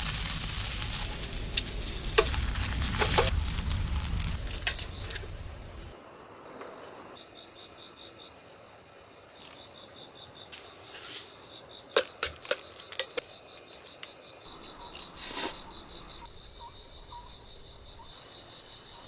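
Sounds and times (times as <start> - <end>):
insect chirping trill: 0.0 - 12.0, 12.6 - 19.0.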